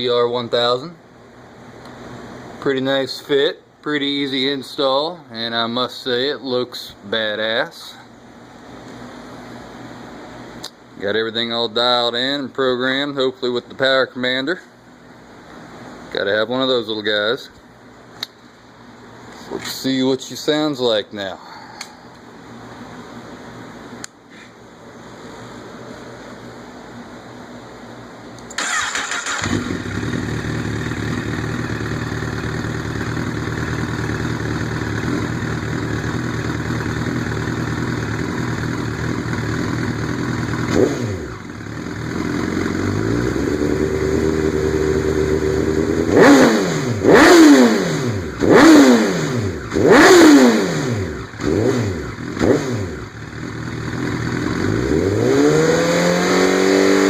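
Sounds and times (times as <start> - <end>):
motorcycle engine revving: 28.5 - 57.0
motorcycle engine idling: 28.6 - 46.1, 51.0 - 55.0.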